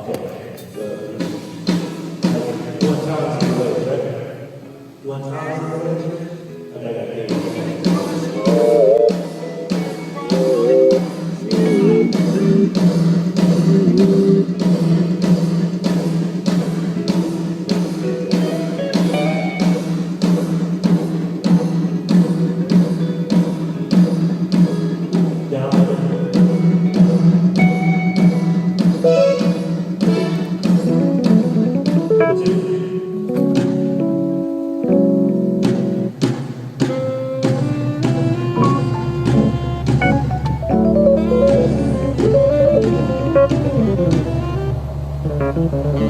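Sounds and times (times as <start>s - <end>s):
drum kit steady beat: 1.1s - 4.2s, 7.2s - 46.0s
electric guitar bending notes: 7.6s - 15.2s, 18.0s - 20.1s, 26.2s - 36.2s, 36.8s - 46.0s.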